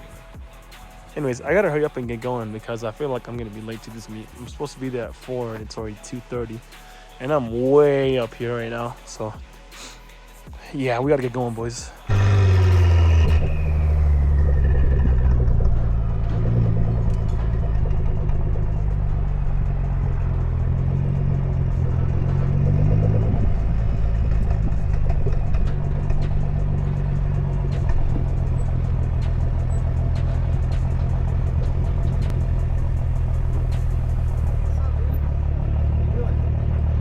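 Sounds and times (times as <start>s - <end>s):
car engine running: 12.0s - 37.0s.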